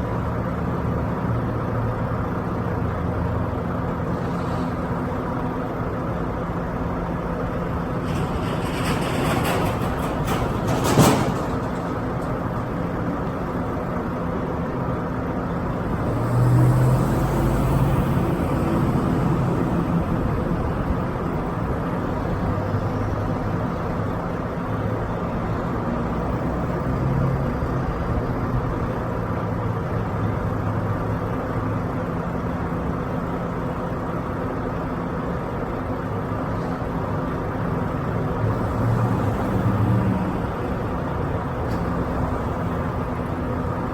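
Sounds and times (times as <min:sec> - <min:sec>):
truck diesel engine running: 0:00.0 - 0:25.8.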